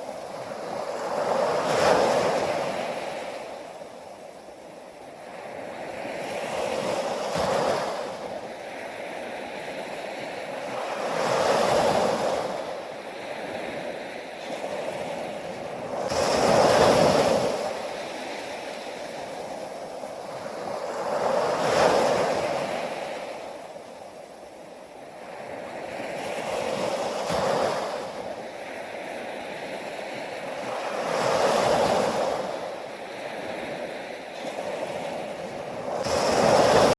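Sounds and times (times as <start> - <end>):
ocean waves washing onto shore: 0.0 - 36.9.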